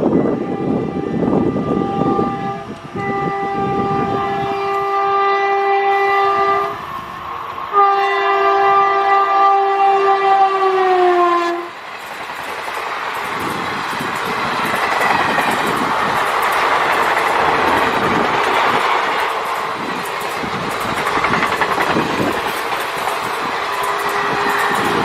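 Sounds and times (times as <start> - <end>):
train rushing roar: 0.0 - 25.0
locomotive horn: 0.2 - 7.1, 7.7 - 11.8, 23.6 - 25.0
wheels clattering over rail joints: 11.8 - 25.0.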